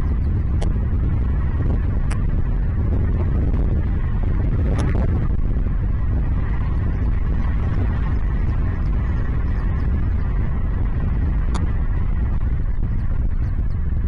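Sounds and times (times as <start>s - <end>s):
wind buffeting microphone: 0.0s - 14.0s
sharp high ticks: 11.4s - 11.8s.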